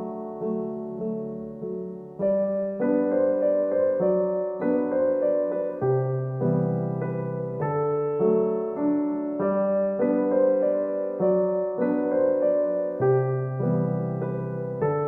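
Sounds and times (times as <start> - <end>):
electric piano slow chords: 0.0 - 15.0.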